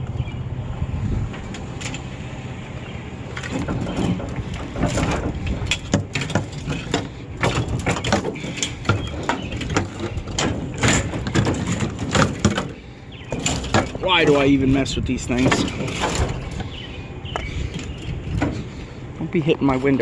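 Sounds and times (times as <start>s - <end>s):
low steady rumble: 0.0s - 20.0s
knocks and clatter of items: 3.3s - 18.8s.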